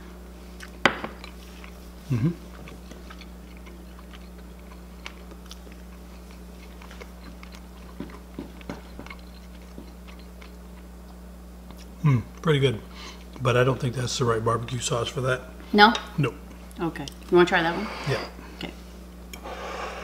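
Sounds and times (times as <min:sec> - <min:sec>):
person chewing quietly: 0:00.2 - 0:13.4
voiced mm: 0:02.1 - 0:02.5.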